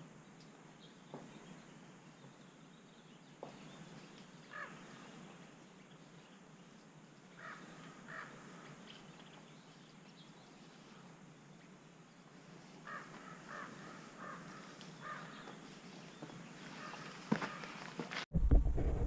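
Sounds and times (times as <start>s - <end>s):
bird cawing: 4.4s - 5.2s, 7.4s - 8.9s, 12.8s - 15.8s, 16.6s - 18.2s.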